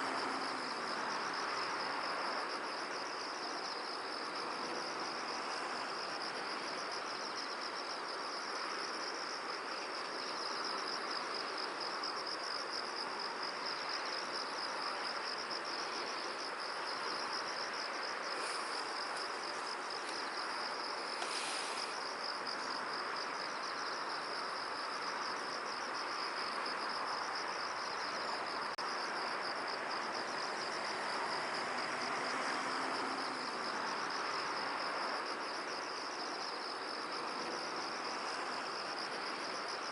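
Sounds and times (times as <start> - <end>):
rushing hiss: 18.2 - 20.2, 20.9 - 22.2.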